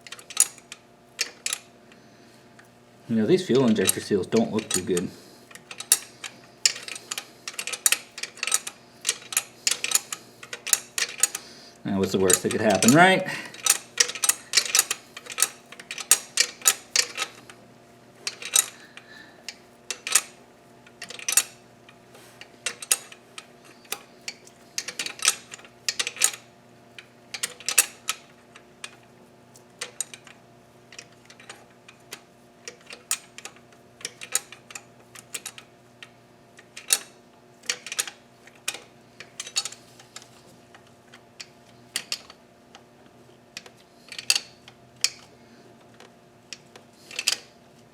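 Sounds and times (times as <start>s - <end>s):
metallic clicks of hand tools: 0.0s - 1.7s, 3.7s - 11.4s, 12.3s - 17.4s, 18.3s - 20.3s, 20.9s - 21.5s, 22.6s - 26.4s, 27.0s - 29.0s, 32.7s - 36.1s, 36.7s - 40.3s, 43.6s - 45.3s, 46.0s - 47.5s
faint steady hum: 0.0s - 47.9s.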